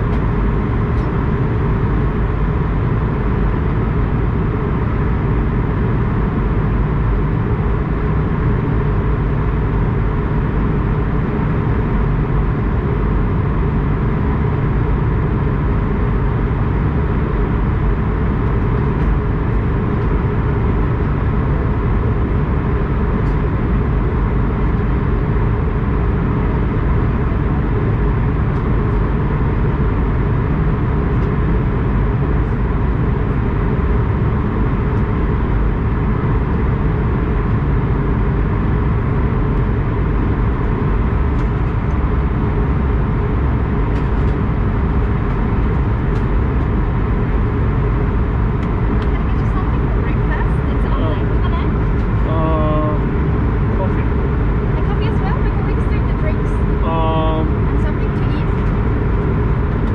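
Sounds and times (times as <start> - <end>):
airliner engine and air noise: 0.0 - 59.9.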